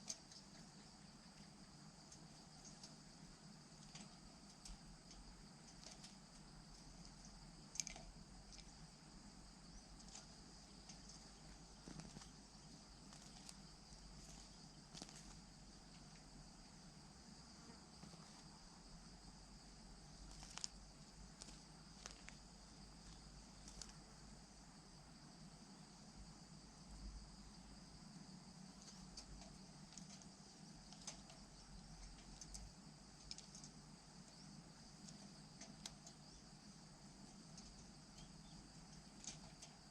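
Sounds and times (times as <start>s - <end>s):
small clicks: 0.0s - 3.1s, 3.7s - 8.9s, 9.8s - 16.3s, 20.2s - 24.1s, 28.6s - 36.4s, 37.2s - 39.9s
faint insect drone: 0.0s - 39.9s.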